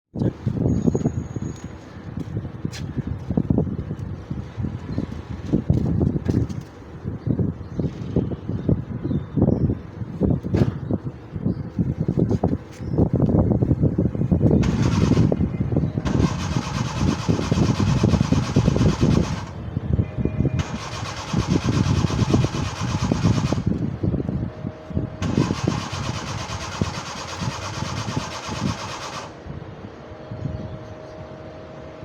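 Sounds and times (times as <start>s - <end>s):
car engine cranking slowly: 16.0s - 19.6s, 20.6s - 23.8s, 25.2s - 29.4s.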